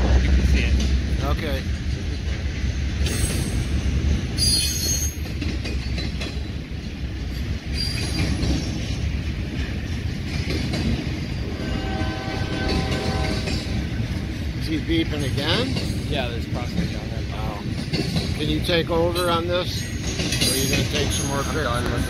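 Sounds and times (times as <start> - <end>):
freight train wheels rumbling: 0.0 - 22.0
wheel squeals: 4.4 - 6.6, 7.7 - 8.9, 19.2 - 22.0.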